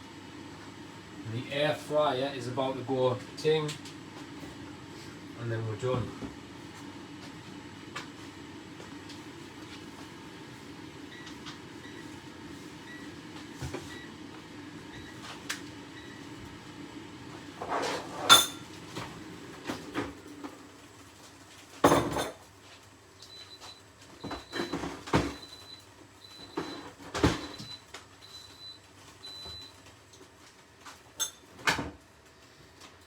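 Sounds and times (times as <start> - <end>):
air fryer timer beeping: 10.6 - 16.8, 23.2 - 29.9
pans and utensils clattering: 21.8 - 22.4.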